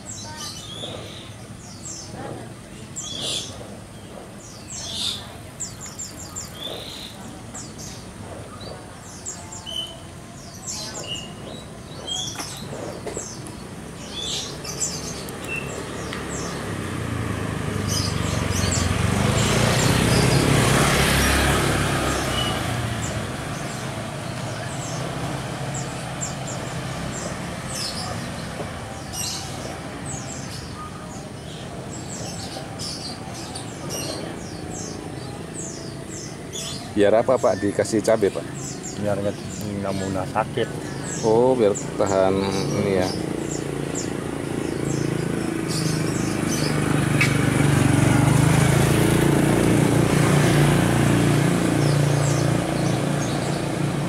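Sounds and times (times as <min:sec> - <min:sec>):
bird chirps: 0:00.0 - 0:16.8
passing vehicle: 0:13.9 - 0:54.0.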